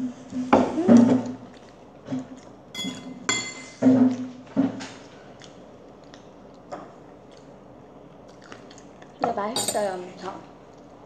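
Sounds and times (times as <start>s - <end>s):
child chewing: 1.2s - 3.3s, 4.1s - 9.2s.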